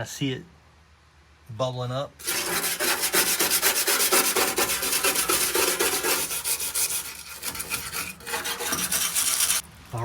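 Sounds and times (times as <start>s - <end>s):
hand scrubbing steel floor: 2.2s - 9.6s.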